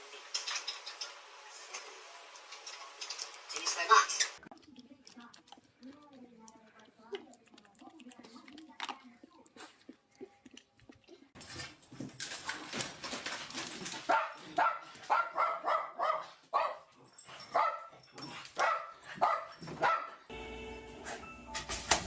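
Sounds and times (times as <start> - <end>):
dog barking and yipping: 14.0 - 20.3.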